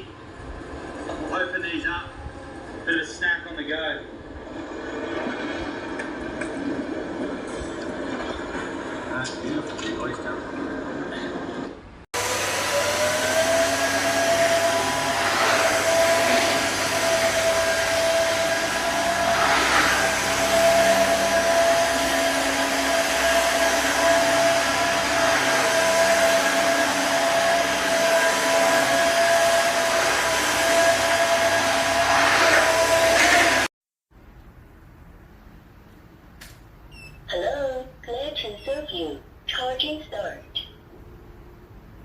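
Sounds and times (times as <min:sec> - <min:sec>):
floor washer vacuum running: 0:12.2 - 0:33.7.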